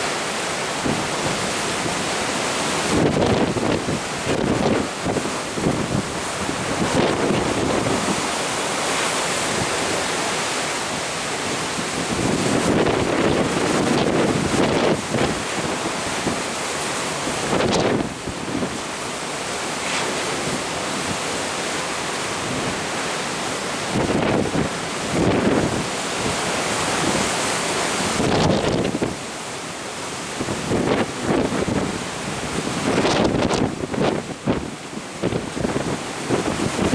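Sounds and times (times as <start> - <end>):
sea water rushing: 0.0 - 36.9
wind buffeting microphone: 0.8 - 10.6, 11.3 - 16.5, 17.2 - 19.0, 23.8 - 29.2, 30.3 - 36.9.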